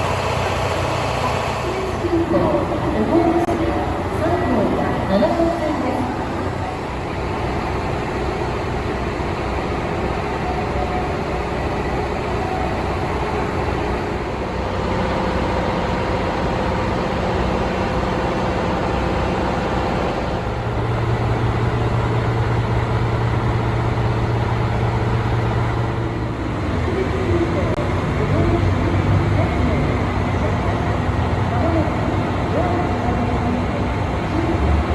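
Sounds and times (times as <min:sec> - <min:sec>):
higher hum: 0:00.0 - 0:16.4
diesel train engines droning: 0:00.0 - 0:34.9.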